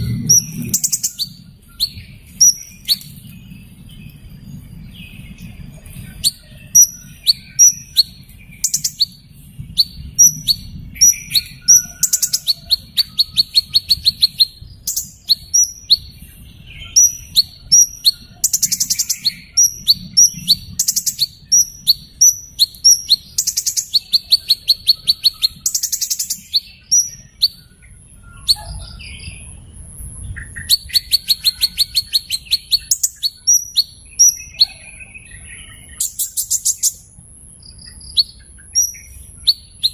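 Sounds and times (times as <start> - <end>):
hummingbird rattling trills: 0.0 - 3.7, 6.2 - 27.7
hummingbird chirps: 0.0 - 29.5, 30.4 - 39.9.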